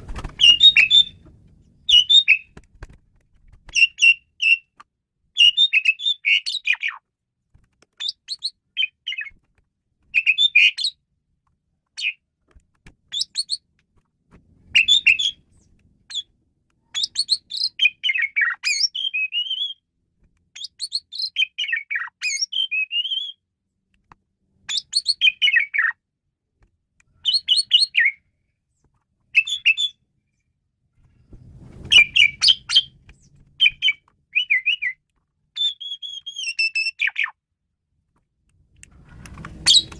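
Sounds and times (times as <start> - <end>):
starling singing chattering whistles: 0.4 - 1.2, 1.9 - 2.5, 14.8 - 15.4, 31.9 - 32.9, 33.6 - 35.0, 35.6 - 37.3, 39.6 - 39.9.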